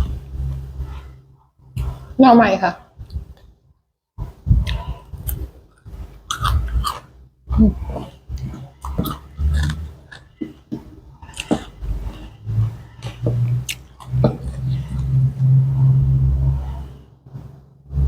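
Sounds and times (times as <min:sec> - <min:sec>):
person chewing food: 0:04.6 - 0:15.2.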